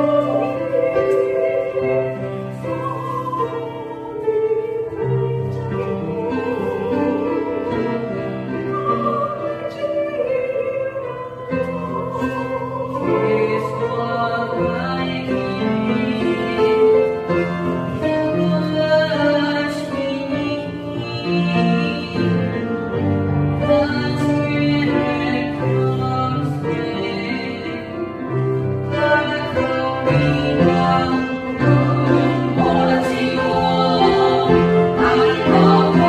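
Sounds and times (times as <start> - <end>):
hymn sung with vibrato: 29.2 - 36.0.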